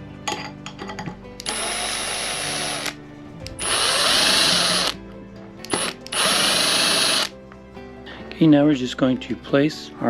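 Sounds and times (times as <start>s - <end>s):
power drill running: 1.4s - 3.0s, 3.6s - 5.0s, 5.7s - 7.3s.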